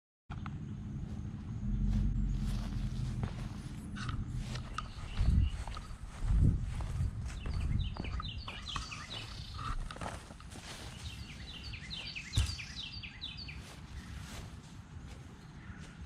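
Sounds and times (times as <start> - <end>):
low rumble: 0.3 - 8.9
bird chirping: 0.3 - 14.4.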